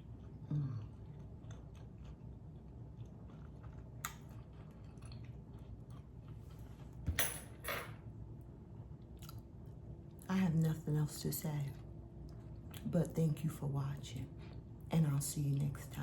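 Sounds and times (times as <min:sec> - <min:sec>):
person chewing food: 0:00.0 - 0:06.9, 0:09.0 - 0:09.5.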